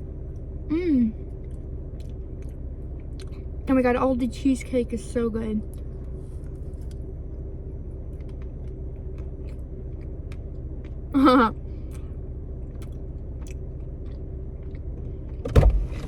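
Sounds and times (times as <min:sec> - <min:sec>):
low hum inside car: 0:00.0 - 0:16.0
wet chewing clicks: 0:01.3 - 0:03.4, 0:12.7 - 0:15.2.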